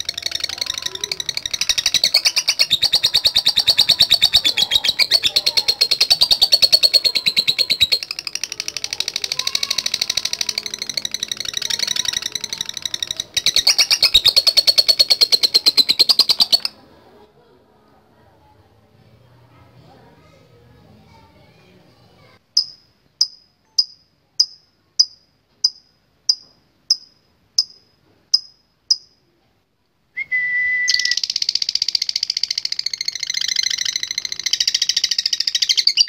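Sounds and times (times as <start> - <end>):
lovebird chattering trill: 0.0 - 16.8, 22.6 - 29.2, 30.9 - 36.0.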